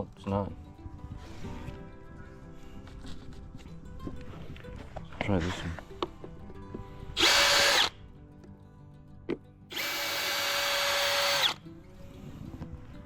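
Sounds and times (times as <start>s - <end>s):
cordless drill motor whining: 7.2s - 7.9s, 9.7s - 11.6s
drill click: 7.2s - 7.9s, 9.7s - 11.6s.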